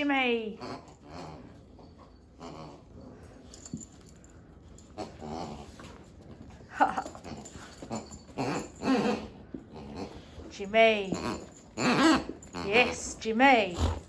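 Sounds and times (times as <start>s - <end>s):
dog growling and whining: 0.6s - 3.8s, 4.8s - 6.1s, 6.7s - 10.5s, 11.1s - 14.0s.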